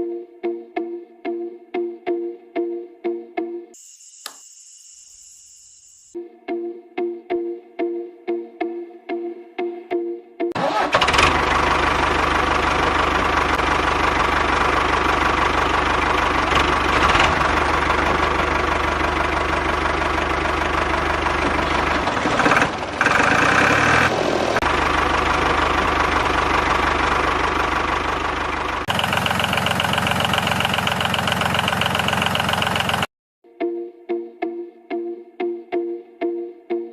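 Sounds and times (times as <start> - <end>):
diesel engine knocking: 11.0 - 33.1.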